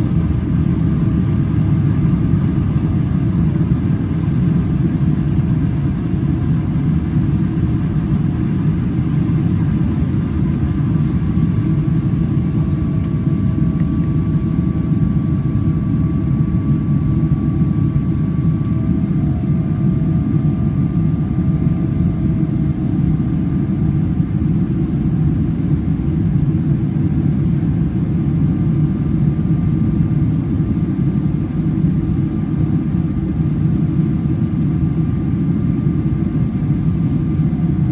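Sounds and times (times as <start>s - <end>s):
faint engine whine: 0.0s - 37.9s
jet engine cabin rumble: 0.0s - 37.9s.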